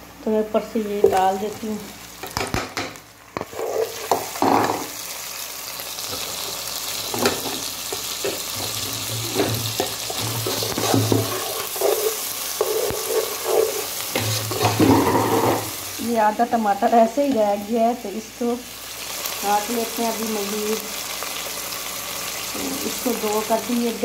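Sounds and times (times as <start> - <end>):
onions sizzling in a pan: 0.0 - 24.0
spatula scraping a pan: 3.4 - 4.9, 7.1 - 15.8.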